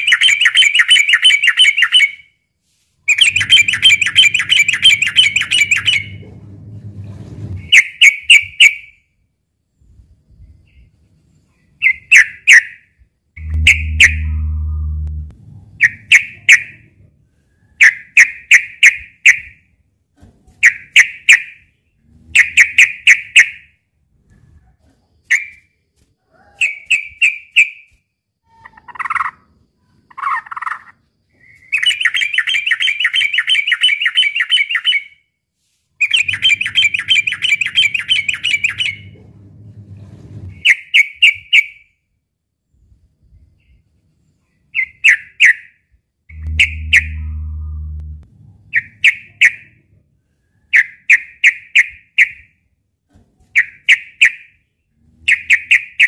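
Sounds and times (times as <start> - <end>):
low hum: 5.3 - 7.7, 13.4 - 17.4, 36.3 - 40.6, 46.3 - 49.0
bulbul singing: 13.4 - 16.8, 46.3 - 49.1.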